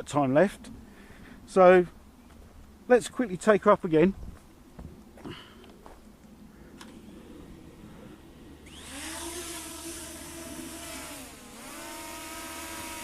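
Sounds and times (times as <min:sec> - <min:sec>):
quadcopter motors whining: 0:06.7 - 0:13.0.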